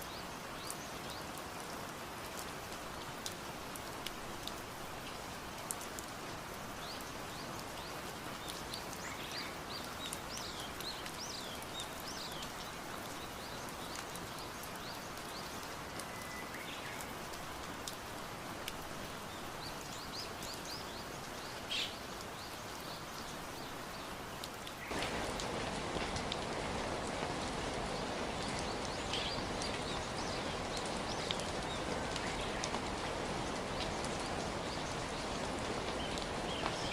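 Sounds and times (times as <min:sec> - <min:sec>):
steady rain falling: 0:00.0 - 0:36.9
birds chirping: 0:27.5 - 0:36.9.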